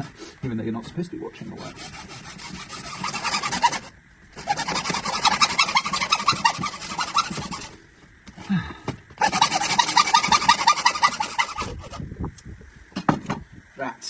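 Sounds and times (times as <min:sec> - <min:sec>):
handsaw cutting plastic pipe: 0:01.4 - 0:07.8, 0:09.2 - 0:12.0.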